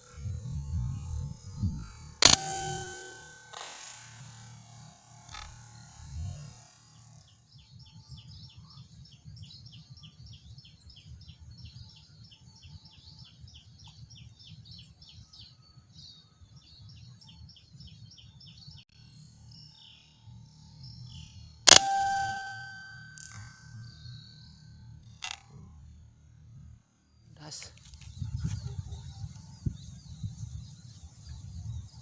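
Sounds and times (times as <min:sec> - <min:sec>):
wind rumble on microphone: 0:00.0 - 0:02.2, 0:27.9 - 0:32.0.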